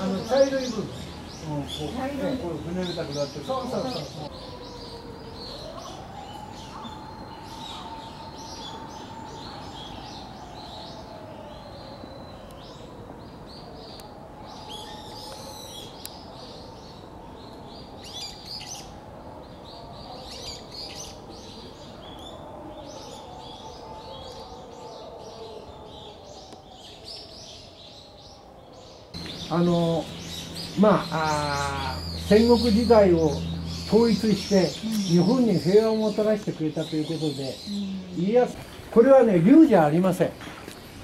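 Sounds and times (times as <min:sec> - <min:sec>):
small birds chirping: 0:00.0 - 0:41.0
faint wavering hum: 0:29.2 - 0:38.8.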